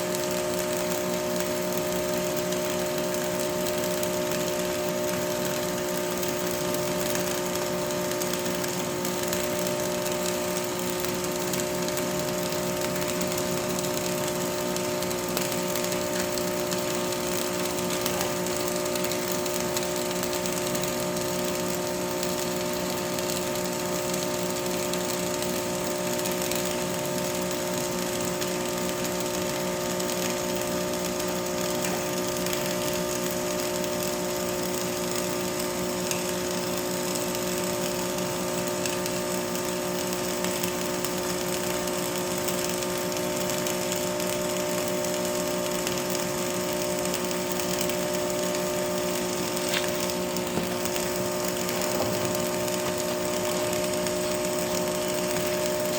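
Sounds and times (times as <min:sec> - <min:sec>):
welding crackle: 0:00.0 - 0:55.9
steady hum: 0:43.0 - 0:55.9.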